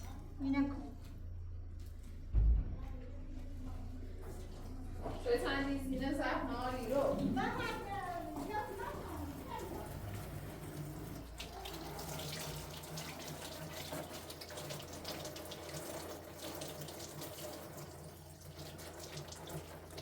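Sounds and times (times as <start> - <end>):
faint low hum: 0.0 - 12.6
water running and splashing: 6.5 - 20.0.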